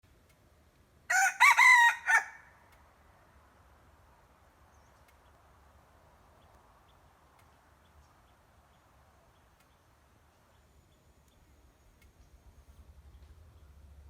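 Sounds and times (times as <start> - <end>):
rooster crowing: 1.1 - 2.5.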